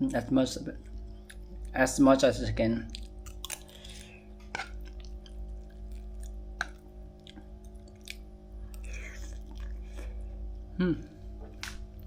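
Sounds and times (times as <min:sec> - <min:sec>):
low hum: 0:00.0 - 0:12.0
person chewing food: 0:00.8 - 0:01.8, 0:02.9 - 0:12.0
wet mouth clicks: 0:04.6 - 0:09.8.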